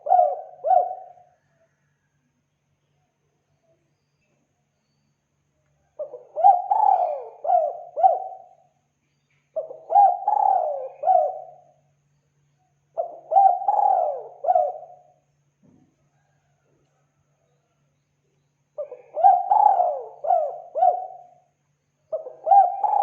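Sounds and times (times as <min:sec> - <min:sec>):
dove cooing: 0:00.0 - 0:01.5, 0:05.9 - 0:08.7, 0:09.6 - 0:11.7, 0:12.9 - 0:15.2, 0:18.8 - 0:21.5, 0:22.1 - 0:23.0.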